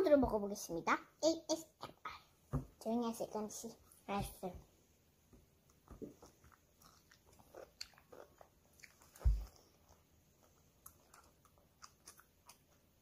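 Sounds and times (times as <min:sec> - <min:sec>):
biting and chewing: 0:05.7 - 0:13.0.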